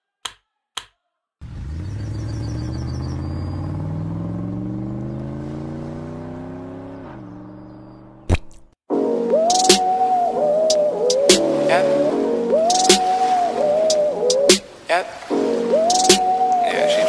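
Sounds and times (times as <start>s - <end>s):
car engine accelerating: 1.4s - 8.3s.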